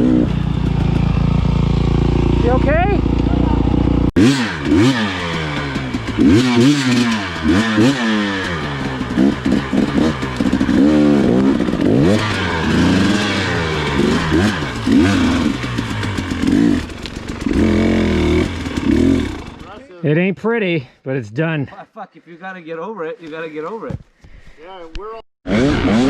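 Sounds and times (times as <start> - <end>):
dirt bike engine revving: 0.0 - 19.8, 25.5 - 26.0.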